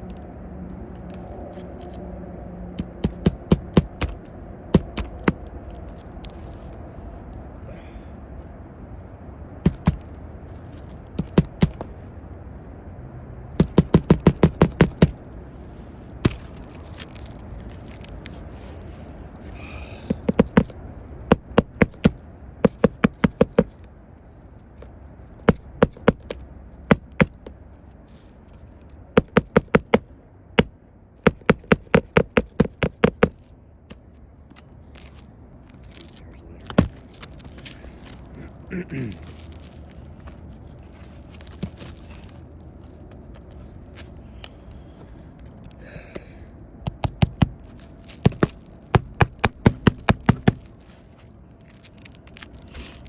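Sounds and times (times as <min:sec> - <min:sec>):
hammer driving nails into shingles: 0:02.8 - 0:05.4, 0:09.6 - 0:10.1, 0:11.2 - 0:11.9, 0:13.6 - 0:15.2, 0:20.1 - 0:23.8, 0:25.5 - 0:27.5, 0:29.2 - 0:33.4, 0:46.8 - 0:50.7.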